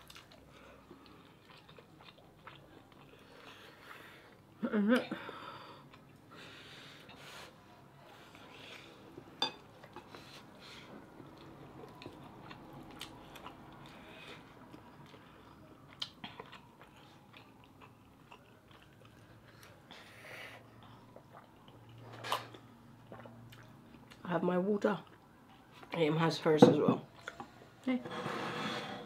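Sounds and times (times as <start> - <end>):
chewing mouth sounds: 0.0 - 3.5, 11.2 - 19.9, 20.8 - 24.2.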